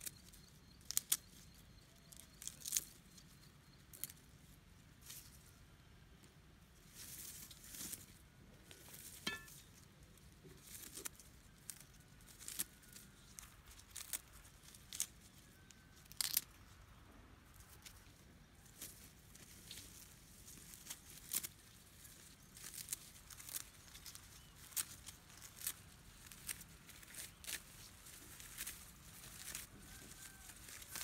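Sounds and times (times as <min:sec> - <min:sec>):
rustling and tearing: 0:10.6 - 0:16.5, 0:17.6 - 0:31.0.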